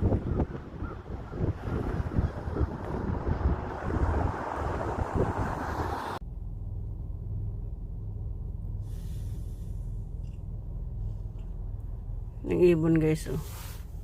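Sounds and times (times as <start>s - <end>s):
wind buffeting microphone: 0.0s - 6.2s
steady low hum: 6.2s - 14.0s.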